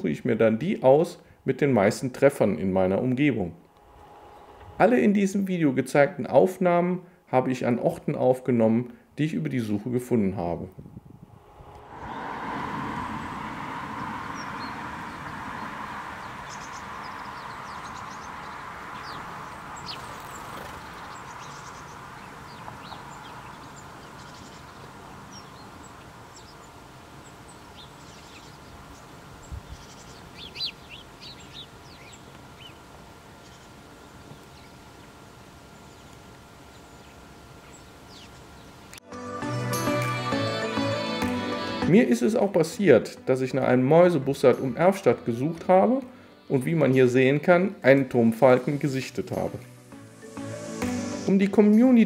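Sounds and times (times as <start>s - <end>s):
small birds chirping: 13.3s - 39.0s
steady hiss: 46.0s - 52.0s.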